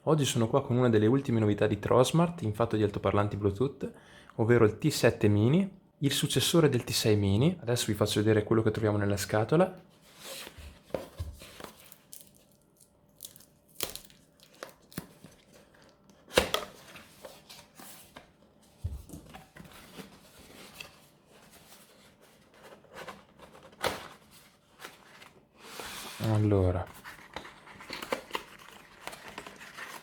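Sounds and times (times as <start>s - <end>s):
wrapping tearing and crinkling: 11.6s - 16.0s, 27.0s - 30.0s.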